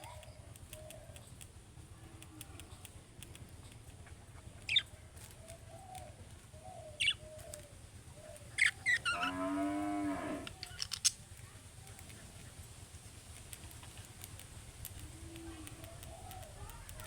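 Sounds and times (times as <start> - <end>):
soft low bird chatter: 0.0 - 17.0
budgerigars chirping: 4.6 - 4.9, 6.8 - 7.2, 8.4 - 9.3
lower-pitched bird call: 4.6 - 7.6, 8.2 - 11.2.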